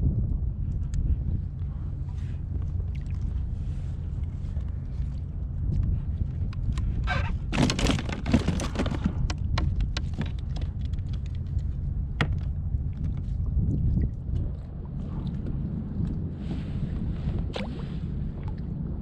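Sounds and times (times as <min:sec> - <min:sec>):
wind buffeting microphone: 0:00.0 - 0:19.0
gear knocking against plastic kayak: 0:05.8 - 0:13.4.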